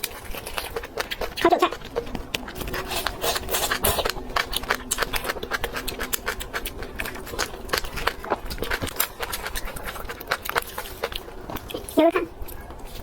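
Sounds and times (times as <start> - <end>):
close chewing and biting: 0.0 - 13.0.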